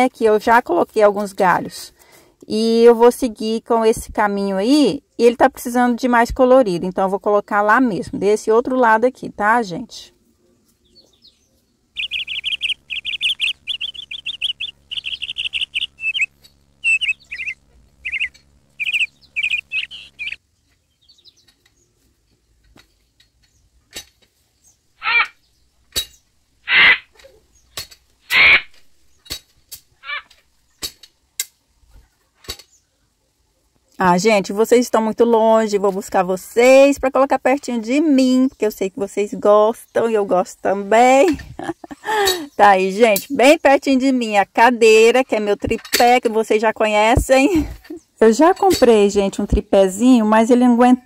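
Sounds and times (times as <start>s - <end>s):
bird chirping and trilling: 10.9s - 20.4s, 25.0s - 29.3s.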